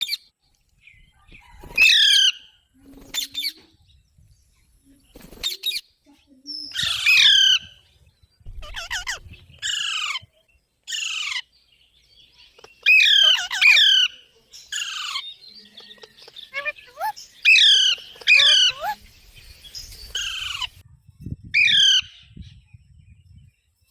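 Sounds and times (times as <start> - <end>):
parakeet squawking and screeching: 1.8 - 2.4, 6.7 - 7.8, 8.6 - 10.2, 10.9 - 11.5, 12.6 - 15.2, 15.9 - 19.0, 20.1 - 20.8, 21.6 - 22.2.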